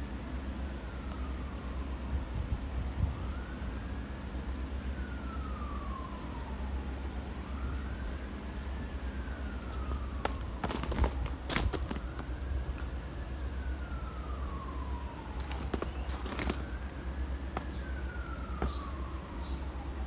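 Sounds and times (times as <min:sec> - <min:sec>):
distant siren wailing: 0:00.1 - 0:20.0
sharp cracks: 0:10.0 - 0:12.9, 0:15.2 - 0:19.0.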